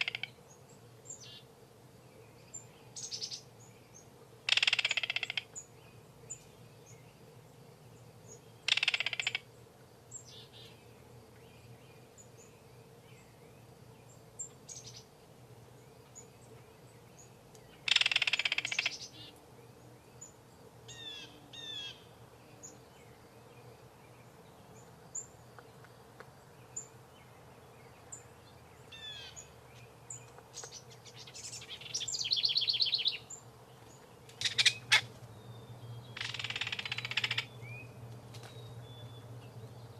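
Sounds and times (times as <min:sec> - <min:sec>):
birds chirping and whistling: 0:30.6 - 0:33.4, 0:34.4 - 0:39.9.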